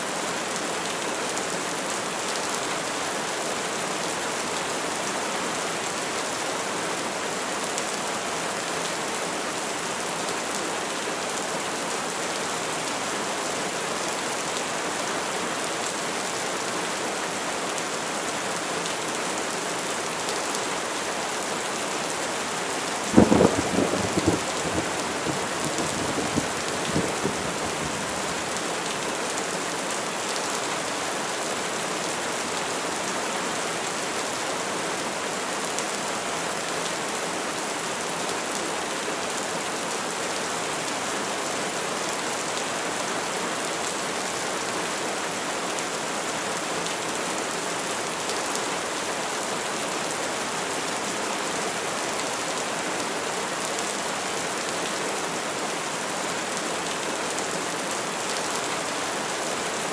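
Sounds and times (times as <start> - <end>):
steady rain: 0.0 - 59.9
thunderclap and rumble: 23.1 - 28.2.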